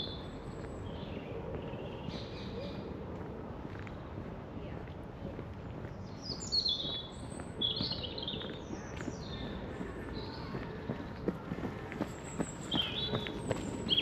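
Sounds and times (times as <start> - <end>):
songbird singing: 5.9 - 14.0.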